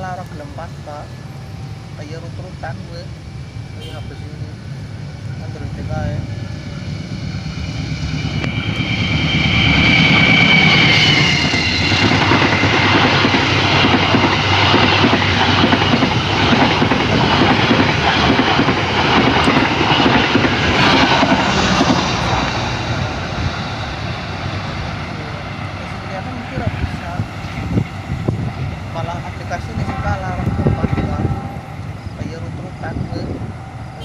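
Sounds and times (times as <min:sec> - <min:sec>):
train wheels clattering on rails: 0:08.0 - 0:23.8.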